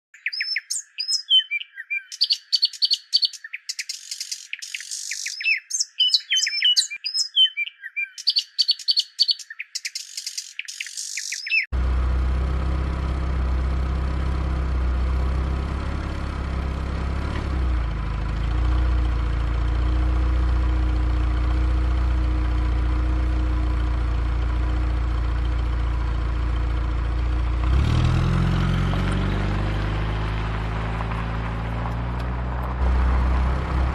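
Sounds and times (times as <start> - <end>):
birds chirping: 0.1 - 11.7
heavy engine rumbling: 11.7 - 33.9.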